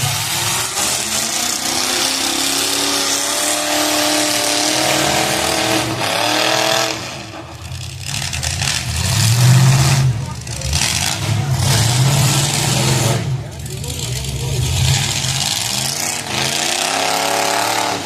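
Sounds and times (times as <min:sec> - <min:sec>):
car engine revving hard: 0:00.0 - 0:18.0.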